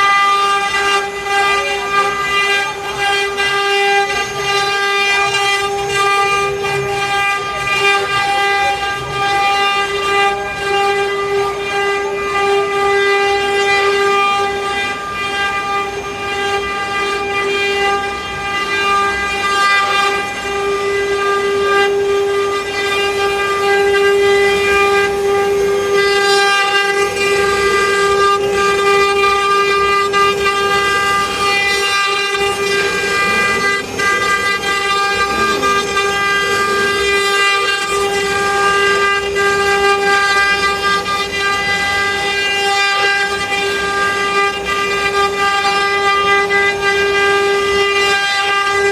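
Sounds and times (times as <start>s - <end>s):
router spindle high whine: 0.0s - 48.9s
rough cutting noise: 19.2s - 44.0s.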